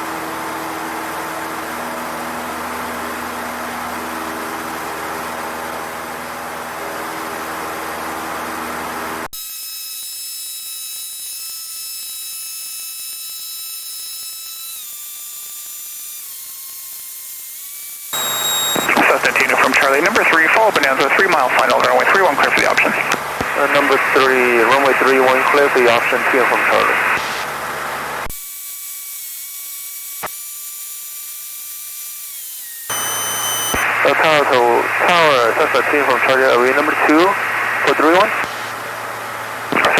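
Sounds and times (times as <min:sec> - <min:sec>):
high electrical whine: 0:18.0 - 0:28.4, 0:32.6 - 0:39.9
radio hiss: 0:18.2 - 0:27.6, 0:32.9 - 0:38.8, 0:39.6 - 0:39.9
aircraft engine and cabin noise: 0:18.2 - 0:28.3, 0:33.8 - 0:39.9
low hum: 0:18.2 - 0:28.3.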